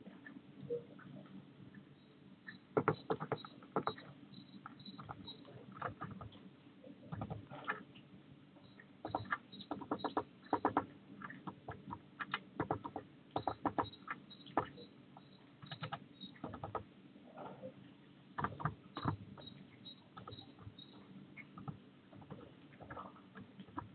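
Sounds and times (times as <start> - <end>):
small bird tapping on wire: 9.0 - 16.8.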